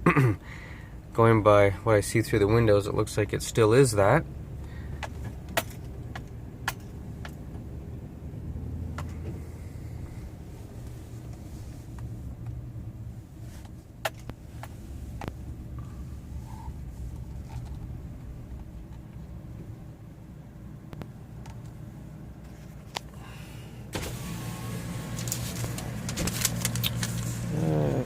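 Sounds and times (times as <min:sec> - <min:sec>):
truck engine idling: 0:22.8 - 0:28.0.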